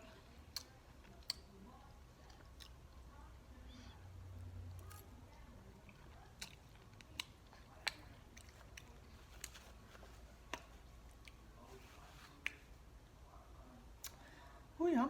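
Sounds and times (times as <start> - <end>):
close-up chewing: 0.0 - 12.5
wet mouth clicks and smacks: 0.5 - 1.5, 5.9 - 9.6, 14.0 - 14.2.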